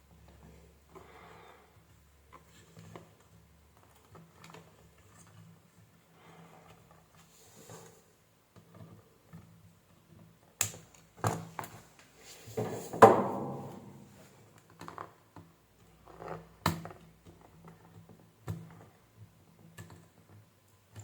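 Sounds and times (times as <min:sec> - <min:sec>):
knock with ringing tail: 0:13.0 - 0:14.1.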